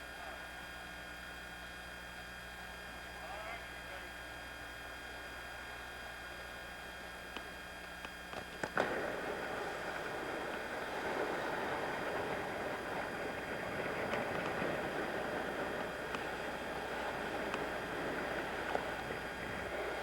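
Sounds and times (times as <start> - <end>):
steady low hum: 0.0 - 20.0
rushing wind and water: 9.1 - 20.0.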